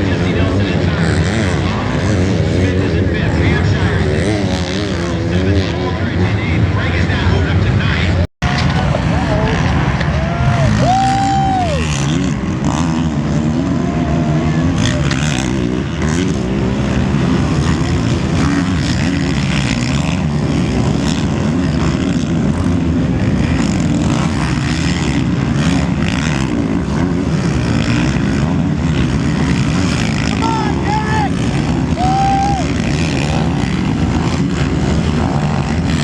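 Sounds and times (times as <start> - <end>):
many motorcycle engines: 0.0 - 36.0
motorcycle revving past: 8.8 - 36.0.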